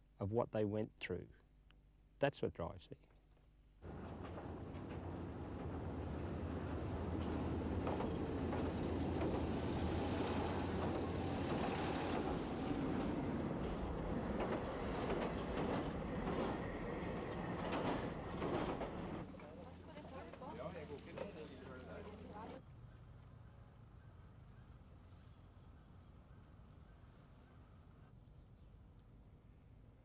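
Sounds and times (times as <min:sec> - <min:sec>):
train rumbling on track: 0:03.8 - 0:22.6.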